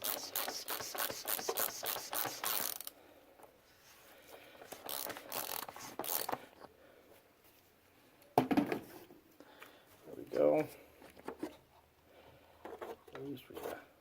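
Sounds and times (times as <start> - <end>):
socket ratchet clicking: 0.0 - 2.9, 4.8 - 6.4.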